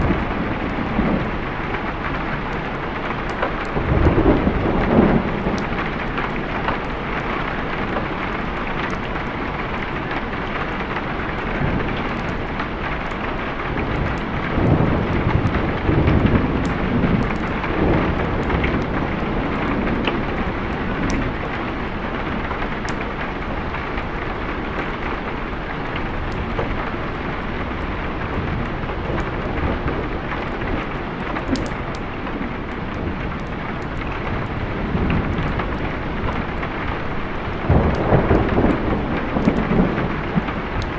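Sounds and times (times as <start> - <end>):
rolling thunder: 0.0 - 8.6, 10.6 - 40.9
steady rain: 0.0 - 40.9.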